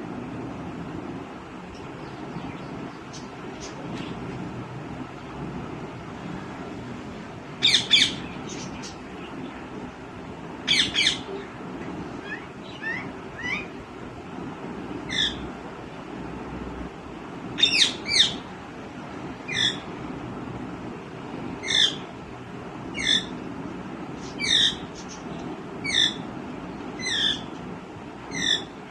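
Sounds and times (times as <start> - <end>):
parakeet shrill calls: 7.6 - 8.9, 10.7 - 11.3, 15.1 - 15.4, 19.5 - 19.8, 21.6 - 22.0, 23.0 - 23.3, 24.3 - 25.2, 25.8 - 26.2, 27.0 - 27.5, 28.3 - 28.7.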